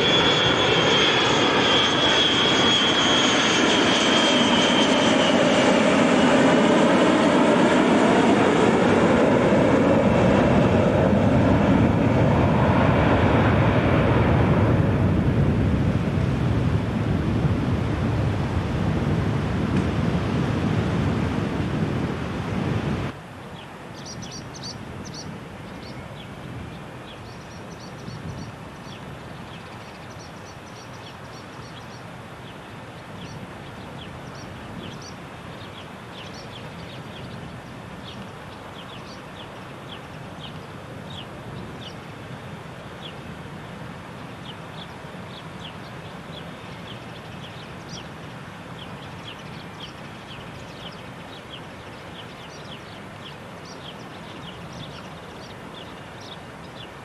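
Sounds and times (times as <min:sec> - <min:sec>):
small birds chirping: 0:23.4 - 0:42.0, 0:44.2 - 0:48.2, 0:48.8 - 0:57.0.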